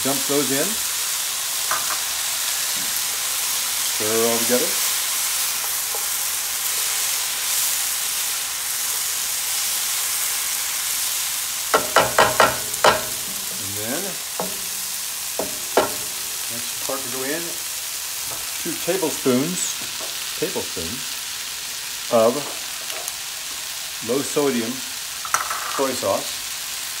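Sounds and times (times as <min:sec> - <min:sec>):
food sizzling in a skillet: 0:00.0 - 0:27.0
spatula knocking against pan: 0:11.7 - 0:13.6, 0:14.3 - 0:16.2
spatula stirring: 0:11.7 - 0:16.5.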